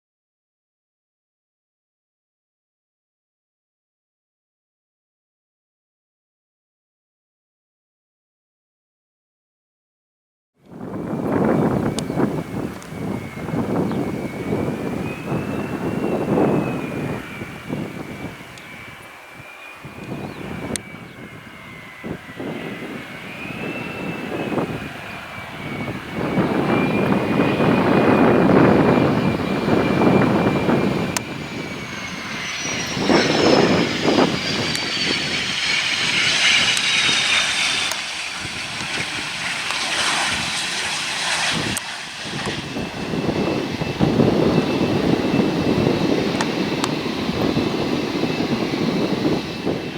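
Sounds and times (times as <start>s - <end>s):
jet engine whine: 10.7s - 49.9s
high whine falling in pitch: 11.2s - 49.9s.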